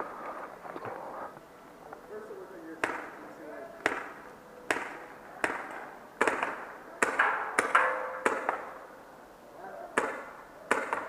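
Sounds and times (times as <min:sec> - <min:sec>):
paintball markers firing: 0:02.8 - 0:03.2, 0:03.8 - 0:08.7, 0:10.0 - 0:11.0
faint shouting: 0:09.5 - 0:10.1.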